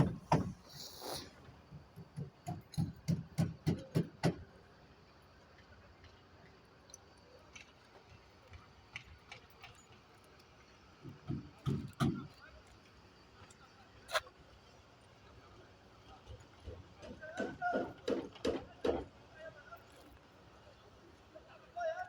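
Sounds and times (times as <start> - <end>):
sharp knocks: 0.0 - 0.6, 17.3 - 19.1.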